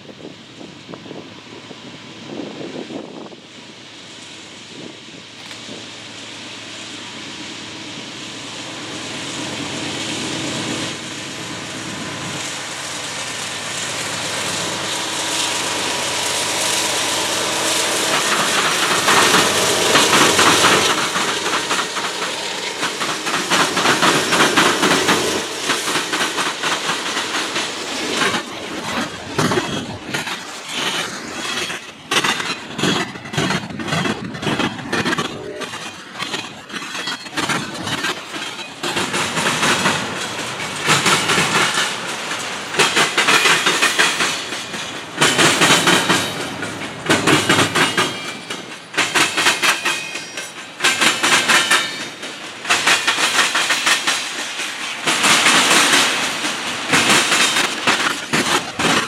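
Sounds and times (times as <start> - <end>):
diesel locomotive engines: 0.0 - 59.0
wheels clicking over rail joints: 11.9 - 59.0.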